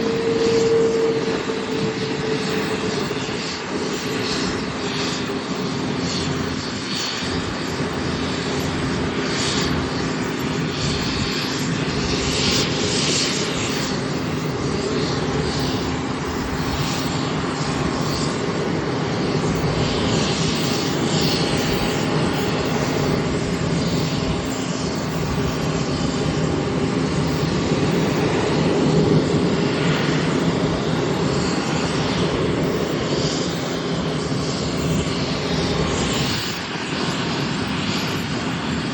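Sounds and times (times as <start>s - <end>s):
aircraft engines running: 0.0s - 38.9s.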